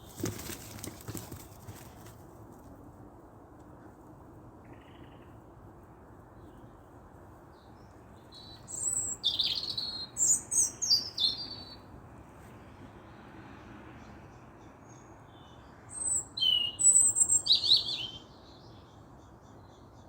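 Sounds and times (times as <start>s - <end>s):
songbird singing: 4.6s - 5.5s, 6.3s - 11.9s, 14.0s - 20.0s.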